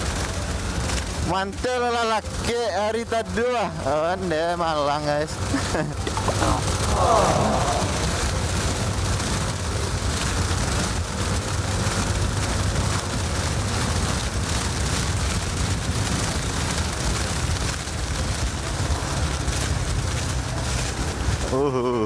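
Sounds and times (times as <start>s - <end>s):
wind rushing over microphone: 5.9s - 21.6s.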